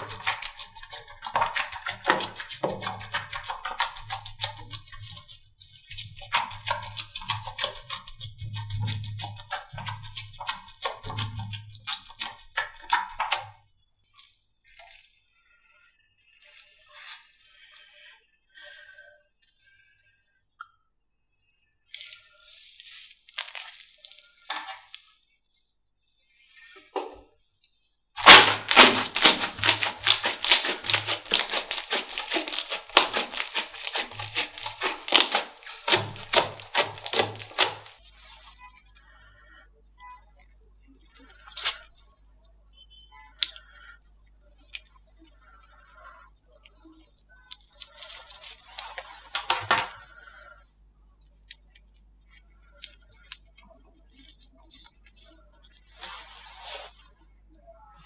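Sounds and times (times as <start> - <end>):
slime wet crackling: 0.0 - 13.6, 22.7 - 25.0, 28.2 - 38.0, 46.7 - 50.0, 52.6 - 56.8
slime squeezed sticky pops: 23.4 - 24.2, 28.2 - 37.9, 47.9 - 49.9.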